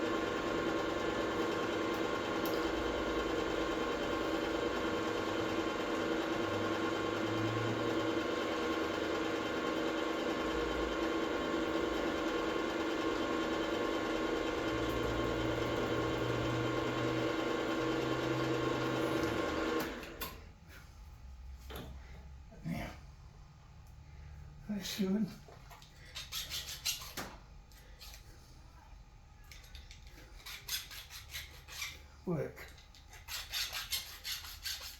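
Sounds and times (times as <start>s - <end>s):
milling machine motor whine: 0.0s - 20.2s.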